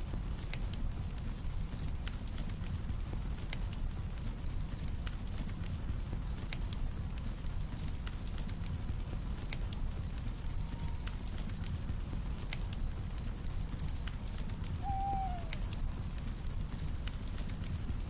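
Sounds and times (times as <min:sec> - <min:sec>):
campfire crackling and popping: 0:00.0 - 0:18.0
crickets chirping: 0:00.0 - 0:18.0
owl hoot: 0:14.8 - 0:15.8.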